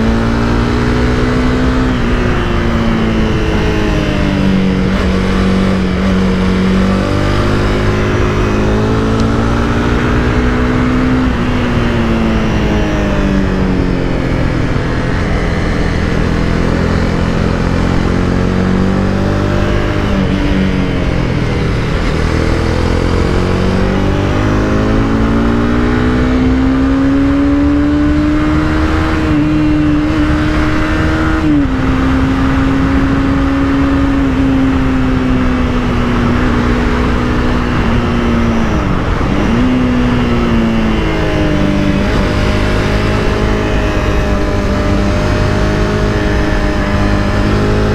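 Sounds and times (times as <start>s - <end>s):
motorcycle engine revving: 0.0s - 47.9s
road and wind noise: 0.0s - 47.9s.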